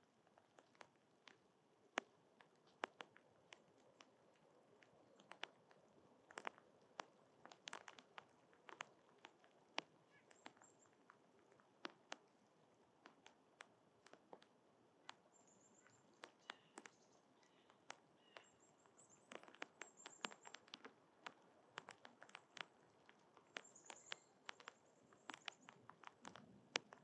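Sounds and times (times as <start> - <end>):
small taps and clicks: 0.0 - 27.0
high bird chirps: 15.3 - 20.6, 23.5 - 25.8.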